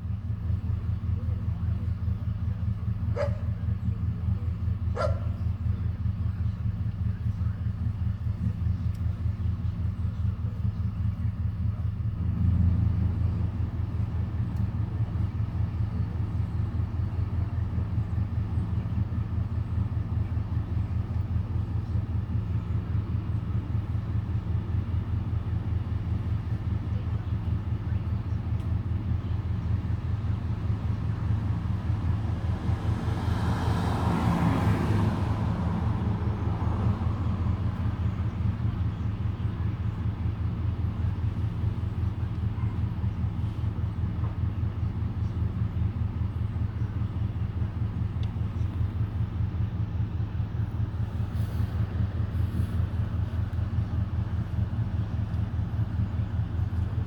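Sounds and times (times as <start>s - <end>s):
low engine rumble: 0.0s - 57.0s.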